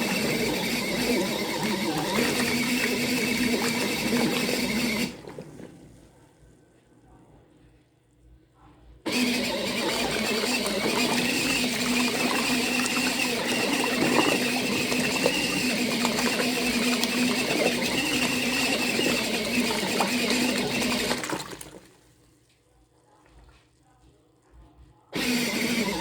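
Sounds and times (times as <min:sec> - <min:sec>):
water splashing and knocks: 0:00.0 - 0:05.8, 0:10.5 - 0:22.0
washing machine motor humming: 0:00.0 - 0:07.5, 0:09.0 - 0:22.0, 0:25.0 - 0:26.0.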